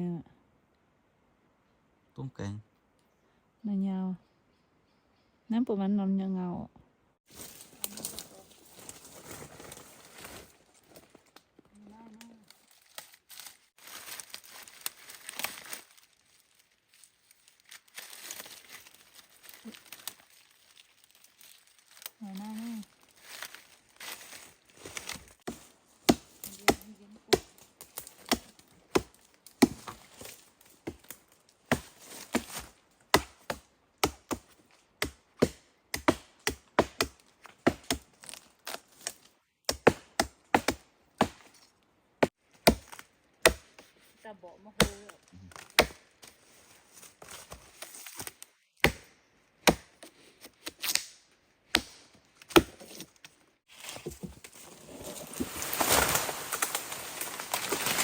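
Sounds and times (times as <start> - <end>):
blade chopping into wood: 25.5 - 30.3, 30.9 - 38.1, 39.7 - 41.5, 42.6 - 43.8, 44.8 - 46.1, 48.8 - 50.0, 50.7 - 53.1.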